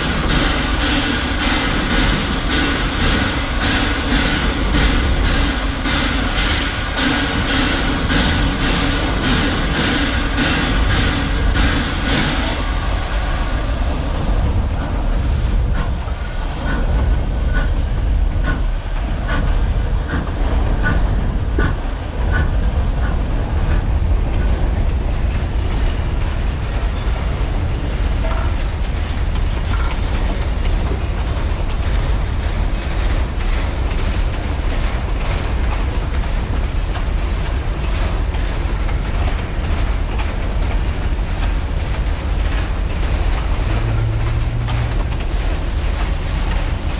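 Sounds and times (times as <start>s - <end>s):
railway cars rumbling on track: 0.0s - 46.9s
wheels clicking over rail joints: 13.9s - 46.9s.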